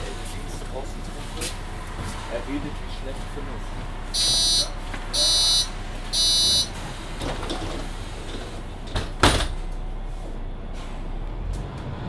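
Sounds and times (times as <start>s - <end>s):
bus doors shutting with a thud: 0.0s - 12.0s
door-closing warning beep: 4.2s - 6.8s.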